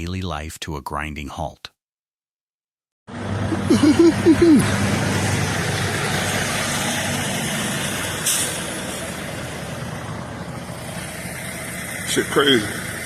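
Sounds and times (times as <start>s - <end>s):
heavy vehicle engine: 3.1s - 13.0s
traffic: 3.1s - 13.0s.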